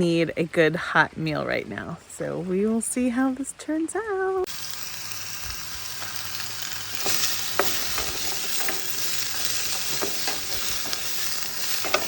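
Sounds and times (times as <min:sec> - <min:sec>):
food sizzling in a pan: 0:04.5 - 0:12.0
utensil clicking against pan: 0:05.6 - 0:12.0.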